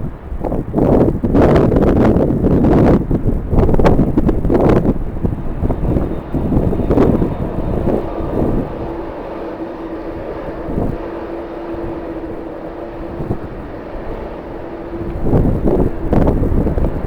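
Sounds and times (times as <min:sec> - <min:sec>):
jet engines droning: 0:00.0 - 0:17.0
wind buffeting microphone: 0:00.0 - 0:17.0.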